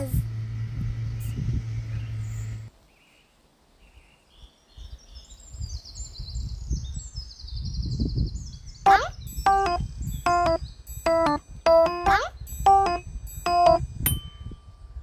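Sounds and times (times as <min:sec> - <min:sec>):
wind gusting on microphone: 0:00.0 - 0:02.7, 0:04.4 - 0:10.8
birds chirping and singing: 0:01.0 - 0:02.7, 0:04.4 - 0:13.0
bright keyboard music notes: 0:08.9 - 0:14.2.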